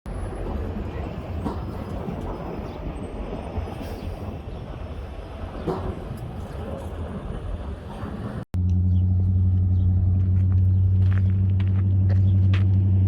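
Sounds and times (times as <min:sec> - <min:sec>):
vehicle rumble: 0:00.1 - 0:13.0.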